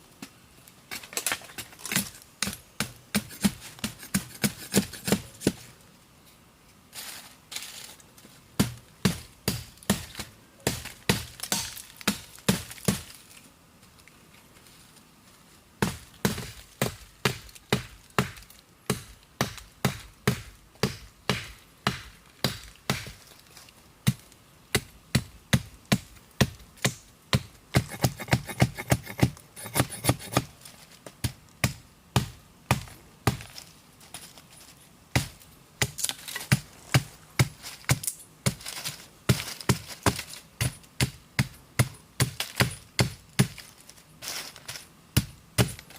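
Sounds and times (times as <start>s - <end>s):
sharp chopping strikes: 2.4s - 5.6s, 24.8s - 30.5s.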